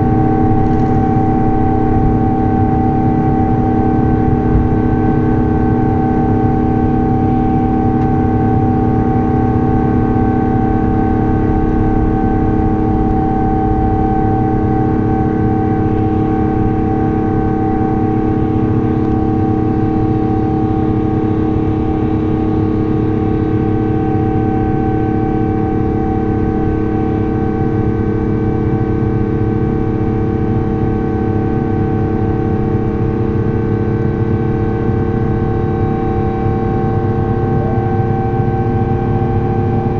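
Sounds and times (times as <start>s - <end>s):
humming fan tones: 0.0s - 39.9s
jet engine noise inside cabin: 0.0s - 39.9s.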